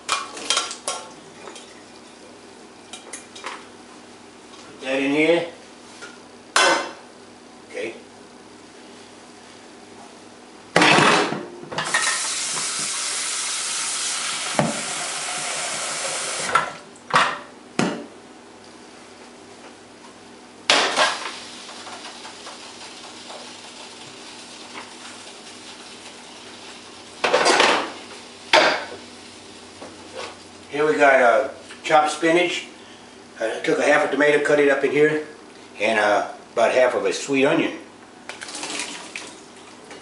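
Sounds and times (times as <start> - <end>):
steady hiss: 11.9 - 16.6, 20.9 - 30.8
pots and pans clattering: 27.2 - 29.0.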